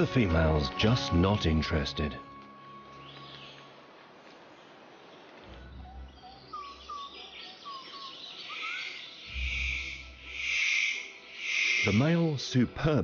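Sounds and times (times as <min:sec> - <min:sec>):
whistled bird chirps: 0:05.7 - 0:12.3.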